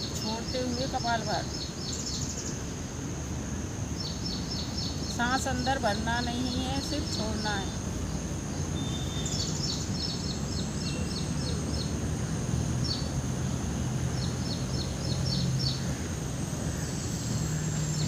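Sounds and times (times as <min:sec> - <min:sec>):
small bird chirping: 0:04.0 - 0:12.1.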